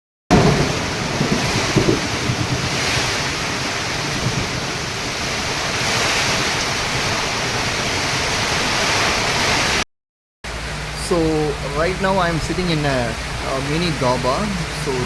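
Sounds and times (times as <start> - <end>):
wind buffeting microphone: 0.3 - 8.8
heavy rain falling: 0.3 - 9.8, 10.5 - 15.0.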